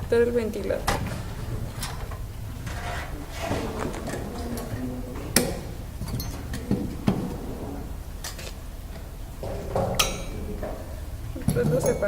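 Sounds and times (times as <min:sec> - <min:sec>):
low steady hum: 0:00.0 - 0:12.0
clicks and knocks of fan handling: 0:03.4 - 0:07.4.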